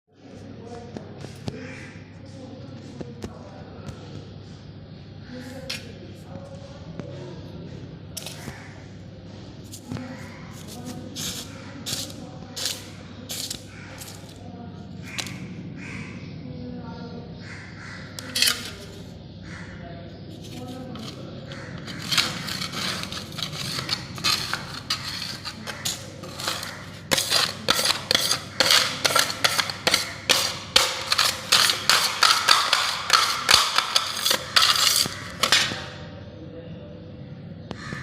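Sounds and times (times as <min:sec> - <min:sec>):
tool scraping a hard floor: 0:09.7 - 0:14.4, 0:18.2 - 0:19.0, 0:20.4 - 0:36.0.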